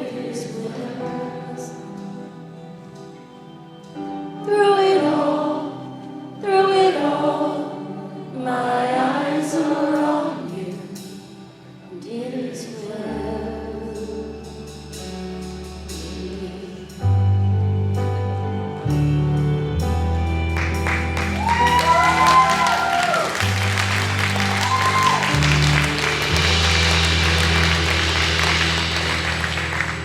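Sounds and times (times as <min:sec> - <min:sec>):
singers holding sustained vowels: 0:00.0 - 0:02.9, 0:04.0 - 0:14.8, 0:21.2 - 0:30.0
keyboard chords: 0:12.9 - 0:30.0
deep bass notes: 0:23.4 - 0:30.0.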